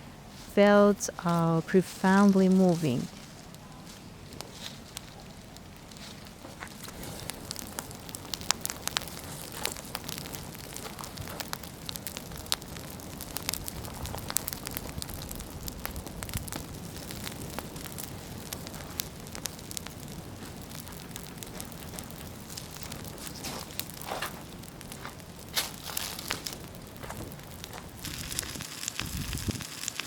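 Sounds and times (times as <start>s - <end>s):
leaves burning and crackling: 0.2s - 30.0s
fire rushing: 2.8s - 30.0s.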